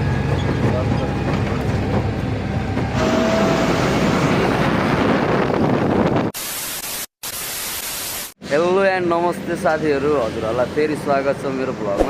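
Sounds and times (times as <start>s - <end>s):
truck engine and road noise: 0.0s - 6.3s, 8.4s - 12.0s
hissing static: 6.4s - 8.4s.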